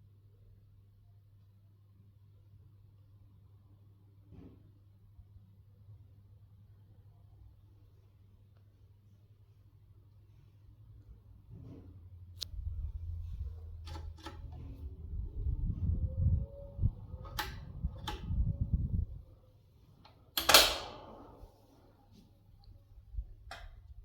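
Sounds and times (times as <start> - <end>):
electric fan humming: 12.4 - 22.2
sharp mechanical clicks: 20.4 - 21.0.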